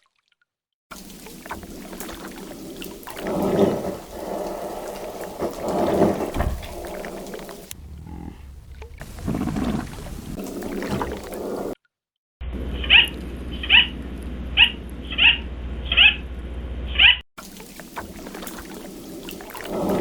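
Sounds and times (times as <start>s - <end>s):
low rough animal call: 2.5s - 11.8s
low hum: 2.8s - 11.4s.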